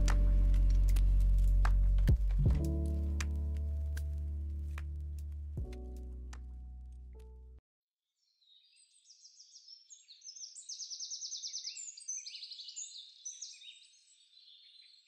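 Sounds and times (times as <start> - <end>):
music track: 0.0 - 7.6
small birds chirping: 8.2 - 15.0.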